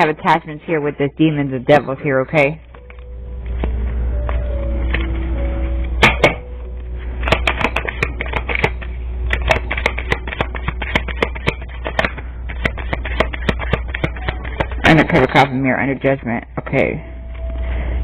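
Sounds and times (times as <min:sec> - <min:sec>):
low hum: 0:00.0 - 0:18.0
cards being shuffled: 0:07.2 - 0:15.1.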